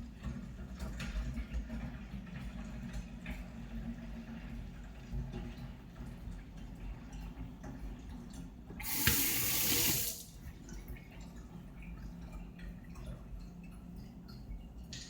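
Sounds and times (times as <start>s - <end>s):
water running: 8.6s - 15.0s.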